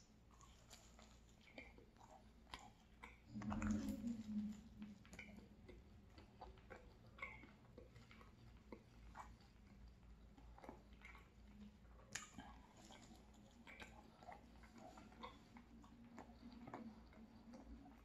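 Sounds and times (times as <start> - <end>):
person chewing food: 0.0 - 18.0
wet mouth clicks: 0.4 - 18.0
short low hum: 3.3 - 5.0.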